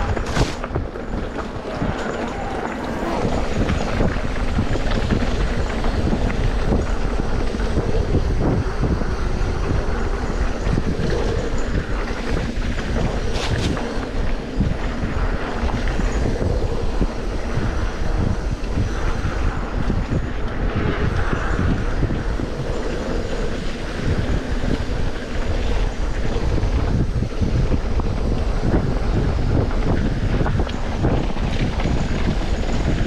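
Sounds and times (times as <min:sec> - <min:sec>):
low wind thumps: 0:00.0 - 0:22.9
wind buffeting microphone: 0:00.0 - 0:33.0.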